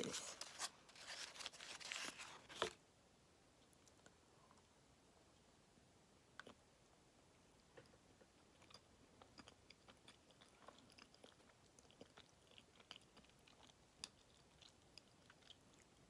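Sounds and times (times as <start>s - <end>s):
person chewing soft cake: 6.3s - 6.7s, 7.5s - 16.0s.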